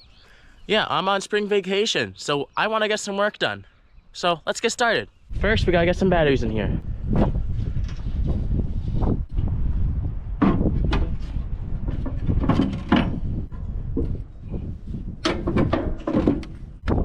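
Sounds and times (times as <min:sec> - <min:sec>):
steady low rumble: 0:05.2 - 0:12.3
metal clunks and knocks: 0:10.4 - 0:14.2, 0:15.2 - 0:17.0.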